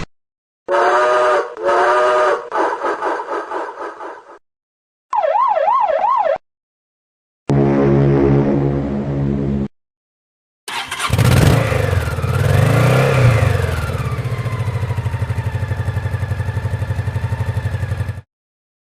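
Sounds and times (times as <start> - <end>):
engine starting and idling: 10.7 - 12.4.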